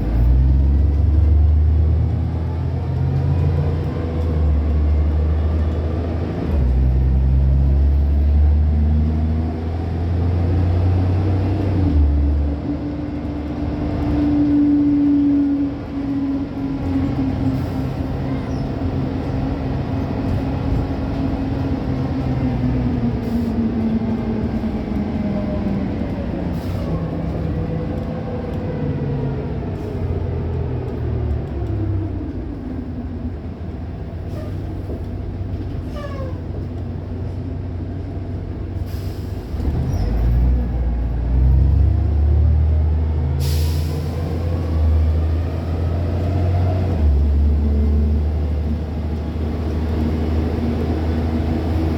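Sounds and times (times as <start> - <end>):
bus engine: 0.0 - 51.9.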